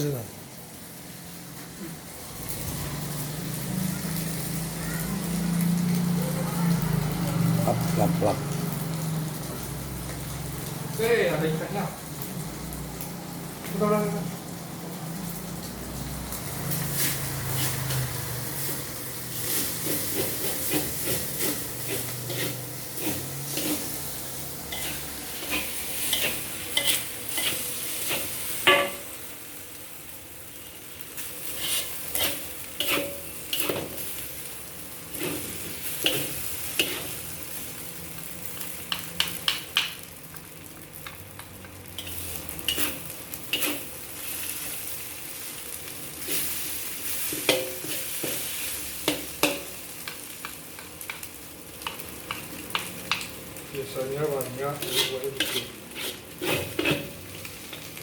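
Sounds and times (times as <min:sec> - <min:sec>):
rice sizzling in a hot pan: 0:00.0 - 0:58.0
utensil scraping and knocking pan: 0:54.8 - 0:57.2.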